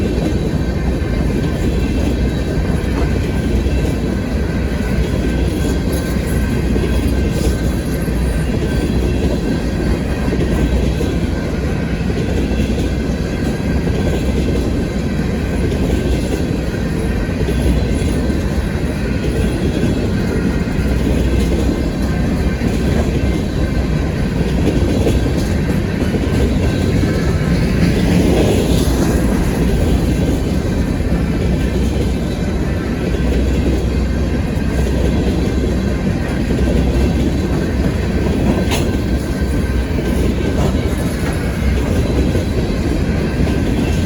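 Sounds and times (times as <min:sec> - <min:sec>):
freight train wheels rumbling on rail: 0:00.0 - 0:44.0.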